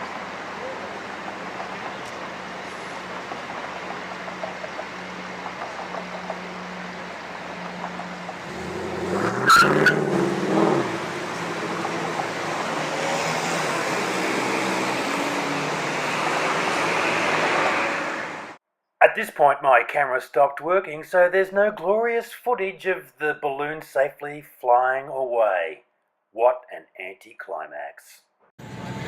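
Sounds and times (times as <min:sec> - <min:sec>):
motor vehicle passing: 0:00.0 - 0:18.6
steady traffic rush: 0:00.0 - 0:18.6, 0:28.6 - 0:29.0.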